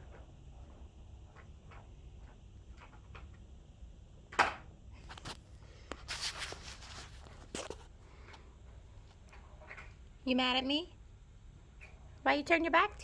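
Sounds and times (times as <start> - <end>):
rustling: 5.0 - 8.4.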